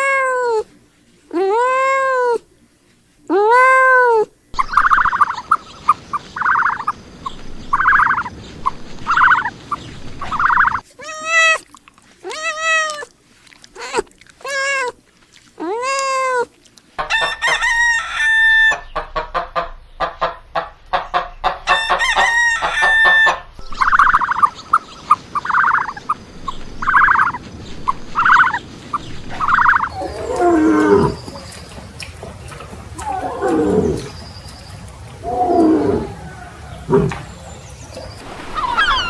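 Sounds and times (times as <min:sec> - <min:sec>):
hens clucking: 0:04.6 - 0:11.7, 0:15.7 - 0:34.2, 0:38.2 - 0:39.0
roosters crowing: 0:17.0 - 0:19.0, 0:21.6 - 0:23.6, 0:38.2 - 0:39.0.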